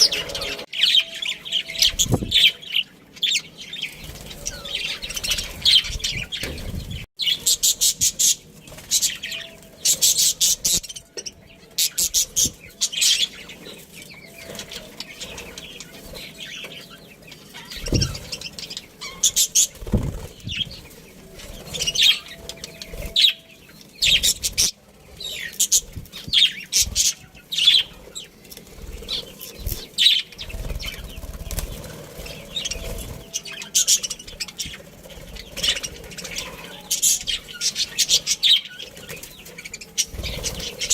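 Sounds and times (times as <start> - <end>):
budgerigars chirping: 11.8 - 28.3.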